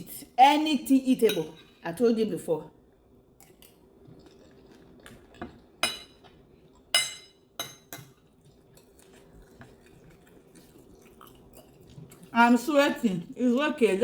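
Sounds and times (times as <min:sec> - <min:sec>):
cutlery clinking on a plate: 0:05.8 - 0:06.3, 0:07.0 - 0:08.2.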